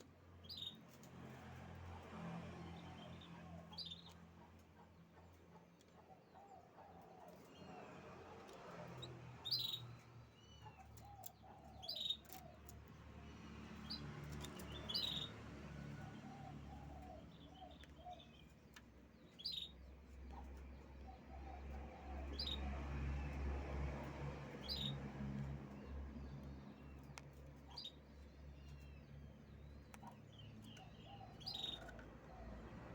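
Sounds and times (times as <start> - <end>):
canary chirping: 0.0 - 0.9, 2.8 - 6.5, 8.4 - 23.4, 24.4 - 32.9.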